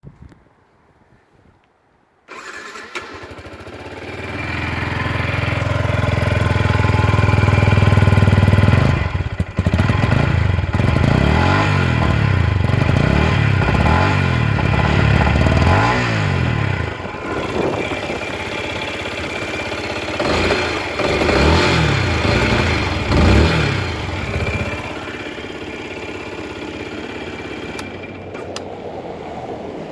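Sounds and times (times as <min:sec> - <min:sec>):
engine revving: 0:02.3 - 0:29.9
motorcycle engine starting: 0:02.3 - 0:29.9
engine idling: 0:02.4 - 0:11.2, 0:16.5 - 0:28.4.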